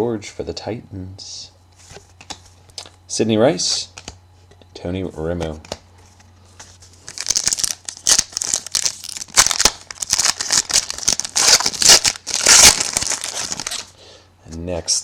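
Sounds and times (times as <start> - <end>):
wrapper crinkling and tearing: 7.0 - 13.9.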